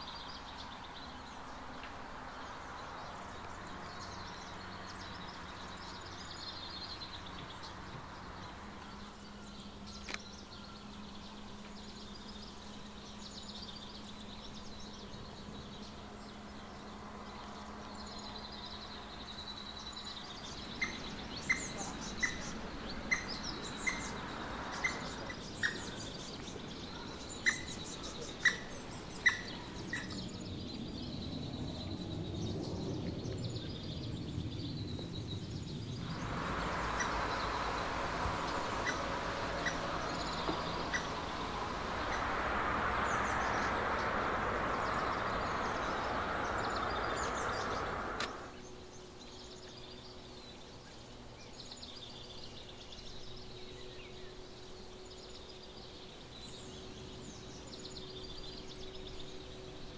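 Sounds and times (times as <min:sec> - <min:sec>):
high chirping of birds: 0:00.0 - 0:59.9
steady rushing noise: 0:22.0 - 0:49.2.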